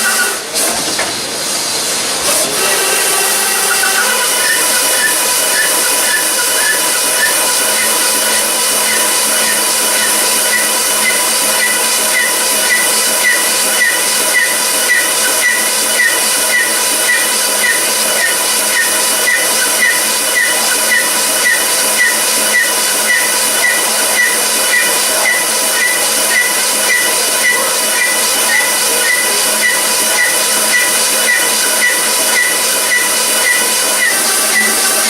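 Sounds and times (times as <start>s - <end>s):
machine hiss: 0.0s - 35.0s
steady machine hum: 1.2s - 35.0s.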